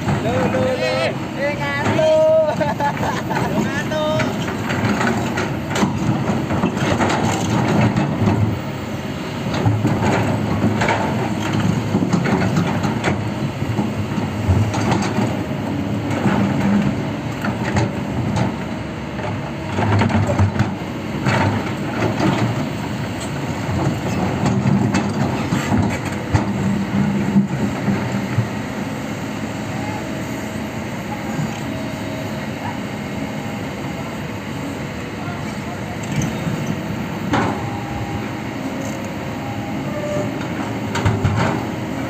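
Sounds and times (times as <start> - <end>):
low diesel rumble: 0.0 - 42.0.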